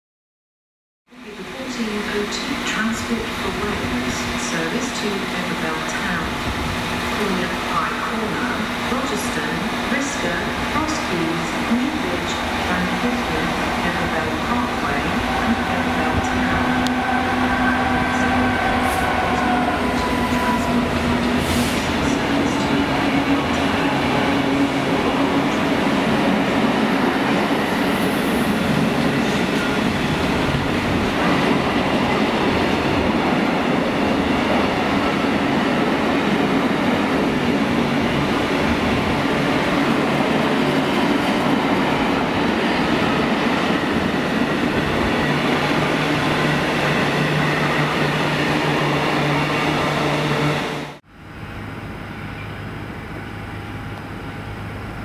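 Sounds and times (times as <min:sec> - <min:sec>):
train wheels rumbling and clattering: 0:08.1 - 0:50.7.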